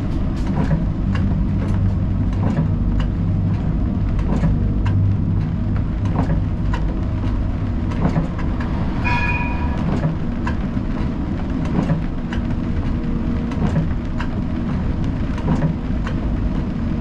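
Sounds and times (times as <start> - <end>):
tram rumbling along rails: 0.0 - 17.0
brief high tone: 8.6 - 10.7.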